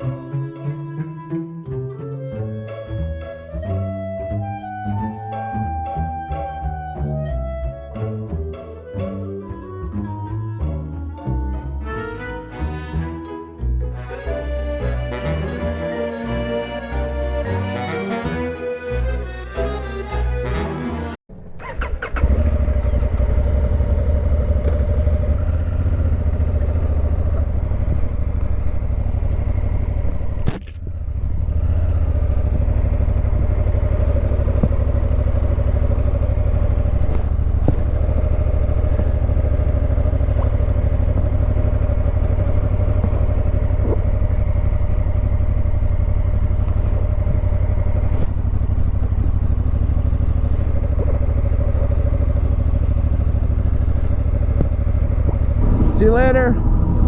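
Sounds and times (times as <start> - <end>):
motorcycle engine rumbling: 21.3 - 57.0.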